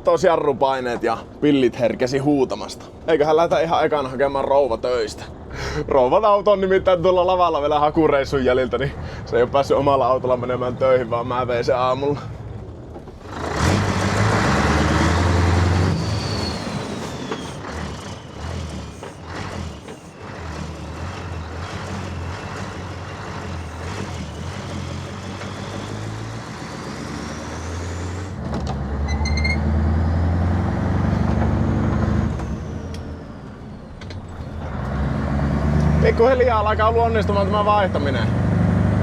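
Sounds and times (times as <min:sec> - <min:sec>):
truck diesel engine pulling: 0:00.0 - 0:39.0
faint high whistle: 0:15.9 - 0:20.2, 0:29.1 - 0:29.6.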